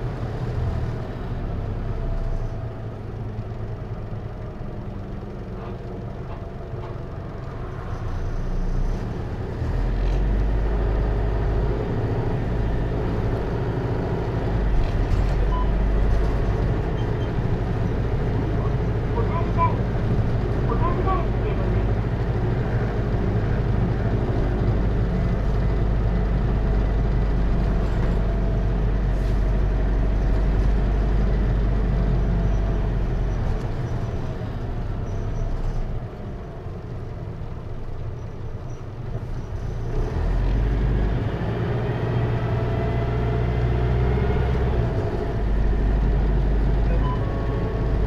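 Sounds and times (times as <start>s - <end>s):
diesel bus engine from inside: 0.0s - 48.0s.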